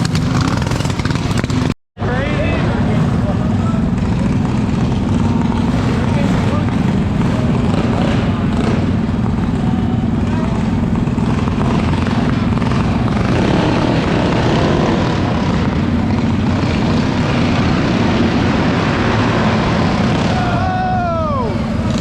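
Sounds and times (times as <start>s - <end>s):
mini bike engines at high revs: 0.0s - 22.0s.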